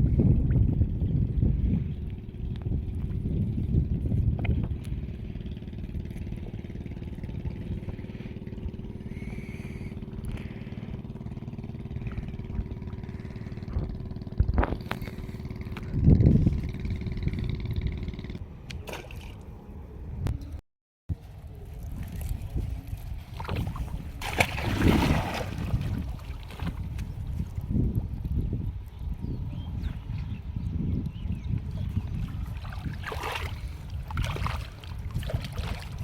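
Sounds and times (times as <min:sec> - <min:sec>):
engine running: 0:00.8 - 0:18.8.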